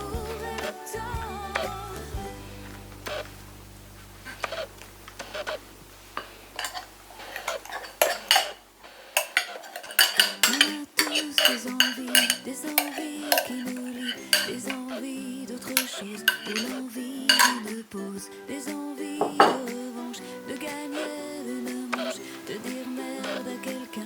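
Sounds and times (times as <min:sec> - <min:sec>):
background music: 0:00.0 - 0:05.6, 0:09.3 - 0:24.0
utensil scraping mixing bowl: 0:04.3 - 0:05.6, 0:06.2 - 0:17.8.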